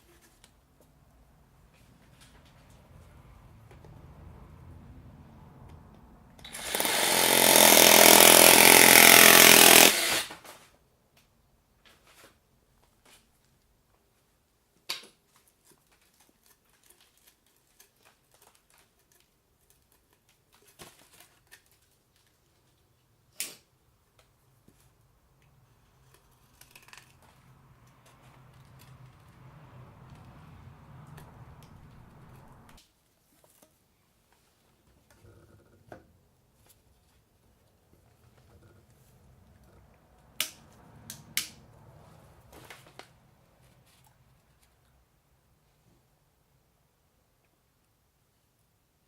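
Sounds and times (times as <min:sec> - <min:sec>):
power tool running: 0:06.4 - 0:10.3.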